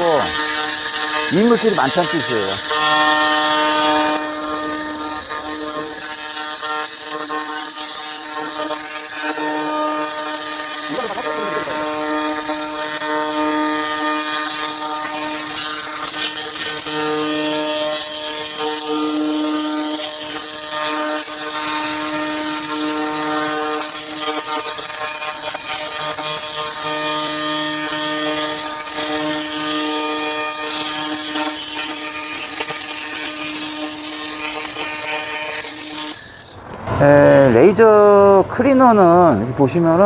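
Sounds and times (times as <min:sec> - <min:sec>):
laser cleaner buzzing and crackling: 0:00.0 - 0:36.6.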